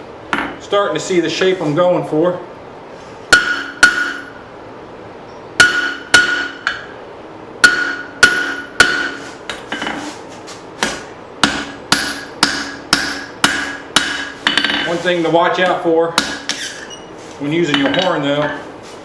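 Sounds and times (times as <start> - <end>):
hammer striking steel on anvil: 3.3 - 4.4, 5.6 - 6.9, 7.6 - 10.0, 10.8 - 15.0, 15.6 - 16.8, 17.6 - 18.6.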